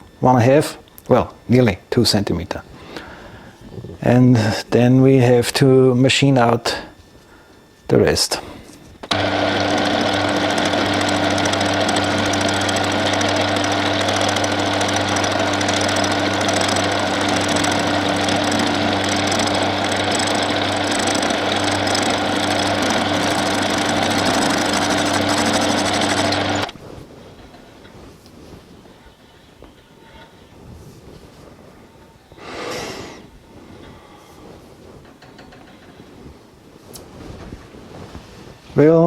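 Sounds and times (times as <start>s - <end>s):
low hum: 8.6s - 27.5s
metal lathe machining: 9.0s - 26.8s.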